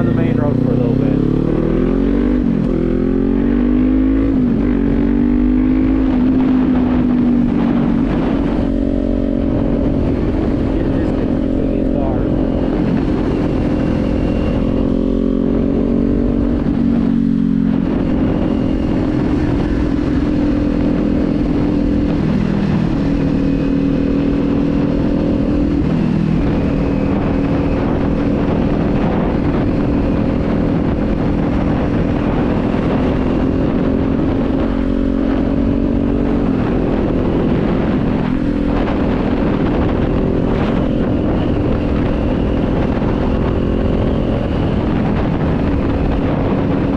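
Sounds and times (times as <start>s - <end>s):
motorcycle engine running: 0.0s - 46.9s
wind noise: 0.0s - 46.9s.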